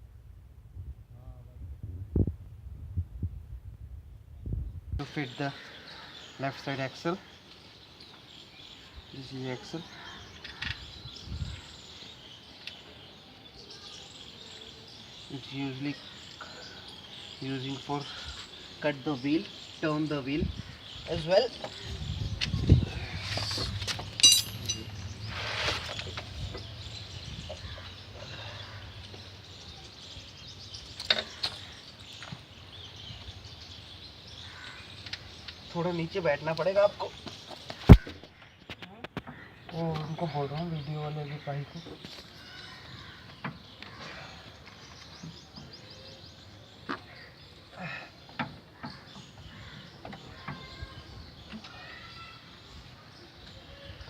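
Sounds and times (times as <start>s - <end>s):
outdoor background noise: 0.0s - 54.0s
birds chirping: 4.5s - 54.0s
metallic clinks of tools: 24.2s - 24.9s.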